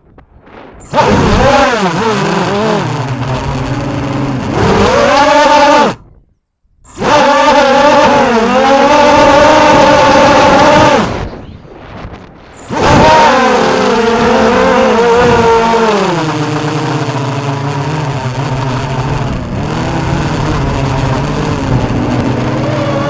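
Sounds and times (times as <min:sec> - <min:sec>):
quadcopter motors whining: 0:00.8 - 0:06.1, 0:06.8 - 0:11.4, 0:12.5 - 0:23.0.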